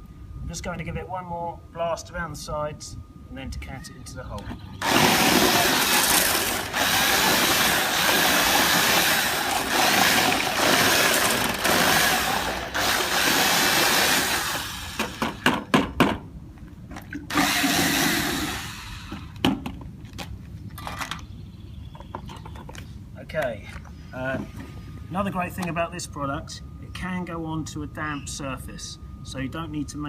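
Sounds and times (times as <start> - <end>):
electric drill mixing mortar: 4.8 - 15.6, 17.3 - 19.4.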